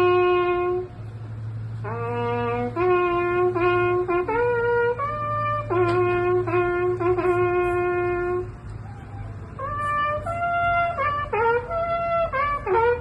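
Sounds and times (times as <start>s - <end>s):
solo trumpet playing: 0.0s - 1.1s, 1.7s - 13.0s
steady low hum: 0.0s - 13.0s.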